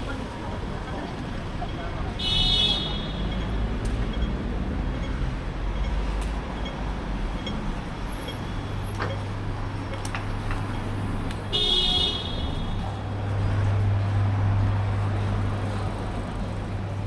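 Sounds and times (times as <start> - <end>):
street traffic hum: 0.0 - 17.0
vehicle horn honk: 2.2 - 3.2, 11.5 - 12.6.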